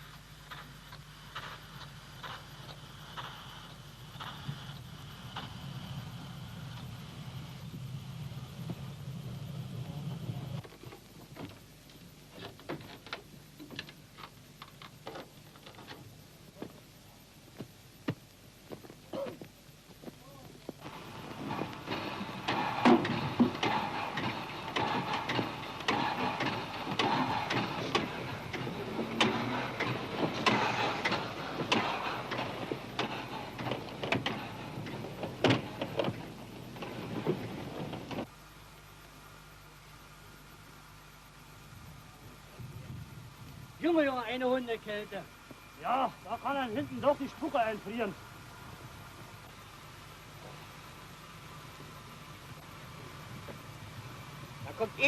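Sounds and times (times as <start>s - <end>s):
low steady hum: 0.0s - 55.0s
steady hiss: 0.0s - 55.0s
sharp clicks and knocks: 10.6s - 16.8s, 20.8s - 38.3s
freight wagons clanking: 20.8s - 38.3s.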